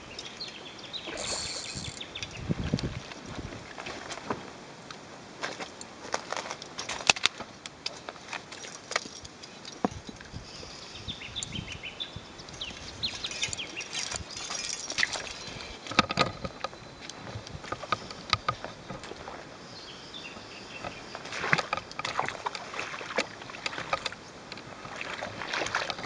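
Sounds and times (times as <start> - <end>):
bird chirping: 0.0 - 2.4.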